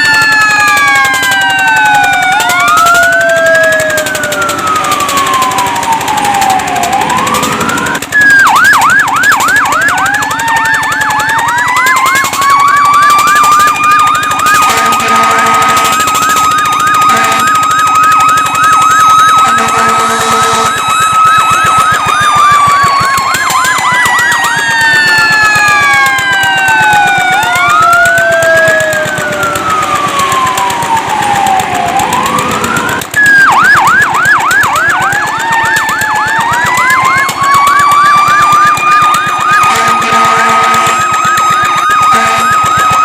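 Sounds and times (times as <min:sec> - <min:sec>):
siren wailing: 0:00.0 - 0:43.0
siren yelping: 0:00.0 - 0:43.0
low horn blare: 0:14.4 - 0:18.4, 0:19.2 - 0:21.0, 0:39.5 - 0:42.8.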